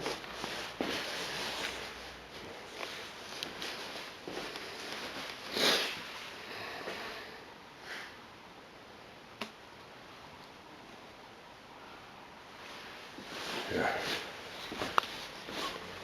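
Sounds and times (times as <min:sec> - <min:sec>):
person sniffing: 0:05.5 - 0:08.2, 0:13.5 - 0:14.8.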